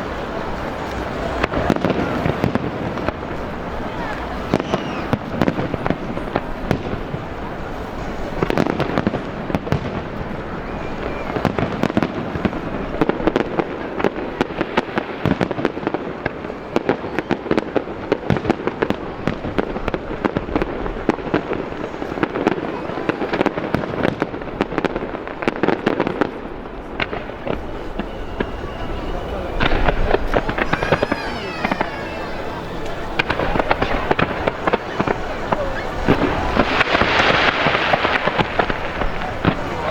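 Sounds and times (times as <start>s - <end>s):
fireworks banging and crackling: 0.0s - 39.9s.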